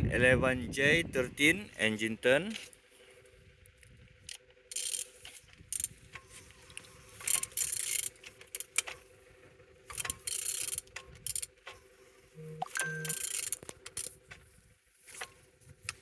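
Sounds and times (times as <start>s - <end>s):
metallic clicks: 4.3s - 9.0s, 9.9s - 11.8s, 12.4s - 14.2s
ratchet wrench rasping: 4.7s - 6.0s, 7.2s - 8.9s, 9.9s - 11.5s, 12.8s - 14.2s.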